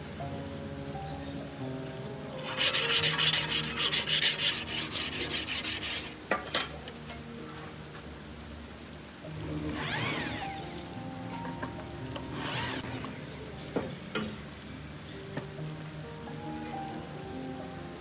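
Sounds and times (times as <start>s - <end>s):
background music: 0.0s - 18.0s
rubbing on metal blade: 2.4s - 6.2s.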